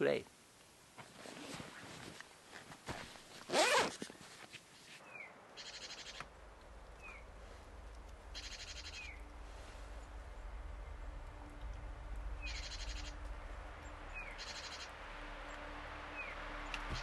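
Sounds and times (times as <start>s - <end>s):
small birds trilling and chirping: 5.0s - 11.6s, 12.3s - 14.9s
faint low rumble: 5.0s - 17.0s.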